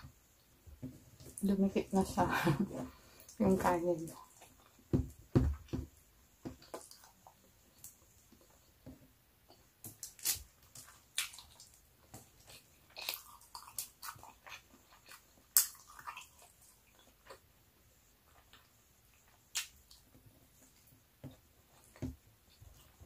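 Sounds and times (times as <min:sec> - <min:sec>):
mouth chewing smacks: 0:12.4 - 0:17.5.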